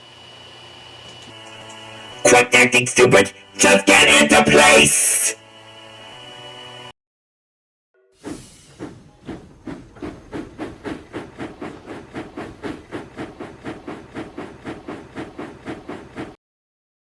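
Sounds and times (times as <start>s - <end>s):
steam locomotive chuffing: 8.2s - 16.4s.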